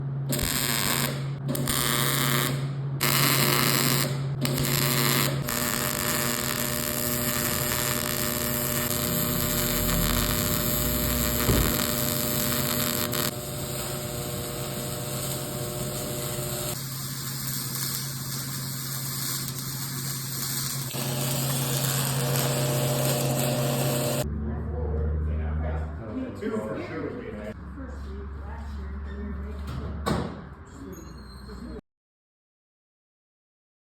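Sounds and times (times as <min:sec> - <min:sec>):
small motor humming: 0:00.3 - 0:18.0, 0:20.4 - 0:24.2.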